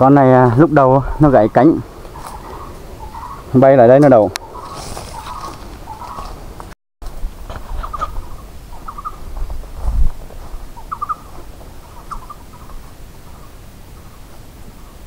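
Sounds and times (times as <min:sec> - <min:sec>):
bird chirping: 0:01.0 - 0:06.7, 0:07.7 - 0:09.4, 0:10.6 - 0:15.0.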